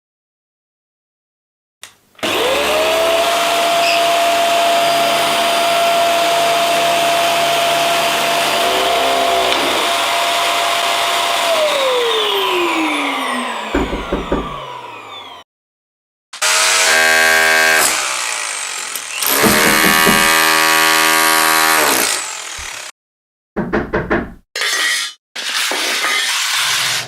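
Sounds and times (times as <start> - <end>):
vacuum cleaner running: 2.2 - 15.4, 19.2 - 21.9
knocks: 13.7 - 14.6, 19.4 - 20.6, 23.6 - 24.4.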